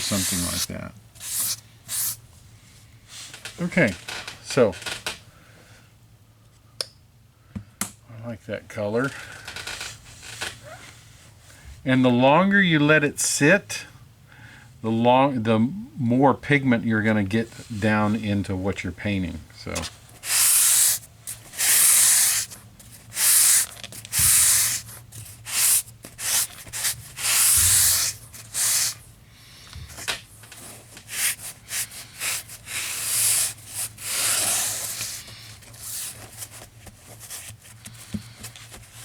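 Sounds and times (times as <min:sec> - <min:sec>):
paintbrush scrubbing rough surface: 0:00.0 - 0:02.2, 0:20.2 - 0:22.5, 0:23.1 - 0:29.0, 0:31.1 - 0:36.2.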